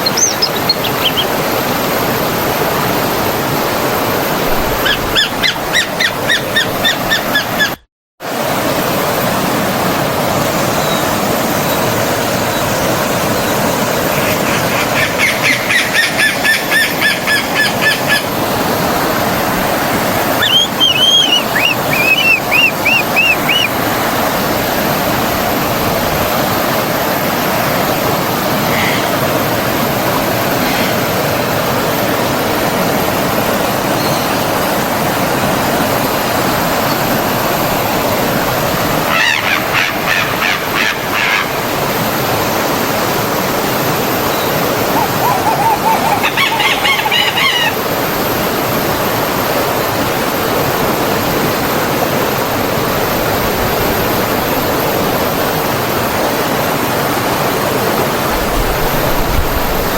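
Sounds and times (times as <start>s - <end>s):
birds singing high notes: 0.0s - 1.7s, 20.3s - 23.8s, 44.2s - 47.9s
stream flowing: 0.0s - 7.6s, 8.3s - 59.9s.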